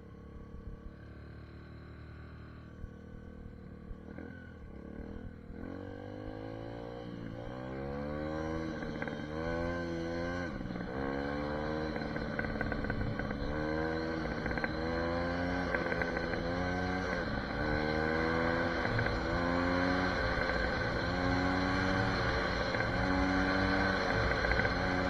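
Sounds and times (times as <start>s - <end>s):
motorbike engine shifting gears: 8.3s - 25.0s.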